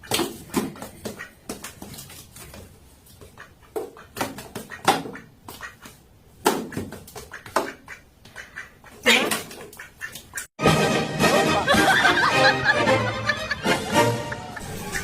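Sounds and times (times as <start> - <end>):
duck quacking: 3.3 - 6.0, 6.6 - 10.5, 13.9 - 15.0.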